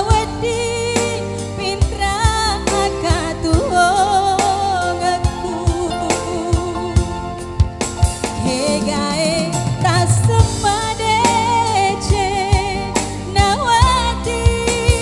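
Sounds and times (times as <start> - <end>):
bass line: 0.0 - 15.0
steady drum beat: 5.2 - 15.0
person singing with vibrato: 8.3 - 15.0.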